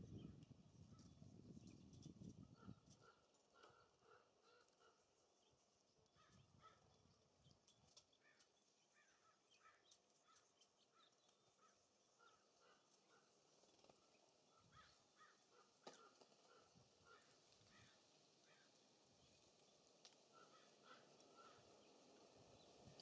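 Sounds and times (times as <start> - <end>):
low wind rumble: 0.0 - 3.1
faint bird calls: 2.6 - 5.1, 8.2 - 18.8, 20.3 - 22.0.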